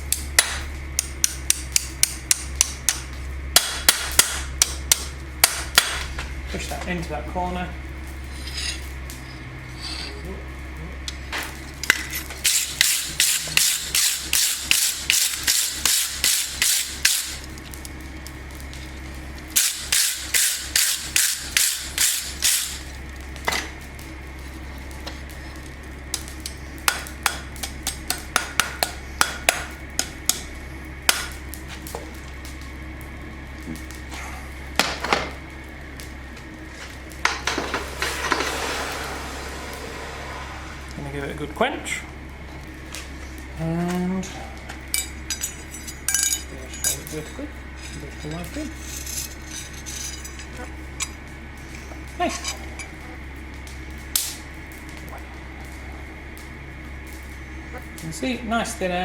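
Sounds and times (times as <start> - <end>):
steady low hum: 0.0 - 59.0
hammer striking steel on anvil: 0.1 - 3.0, 3.6 - 6.0, 12.4 - 17.3, 19.6 - 22.8, 26.9 - 30.5, 31.1 - 31.3, 44.9 - 51.1.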